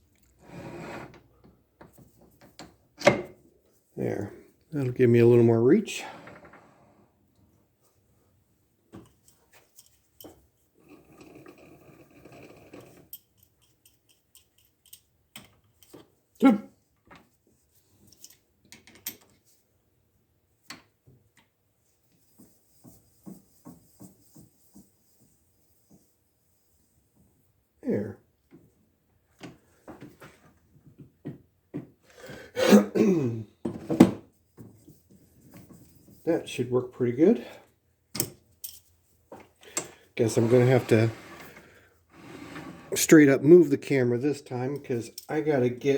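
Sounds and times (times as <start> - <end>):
clicks and knocks of metal parts: 12.3 - 16.1, 18.0 - 19.4, 38.1 - 39.9
metal scraping rub: 40.2 - 43.3.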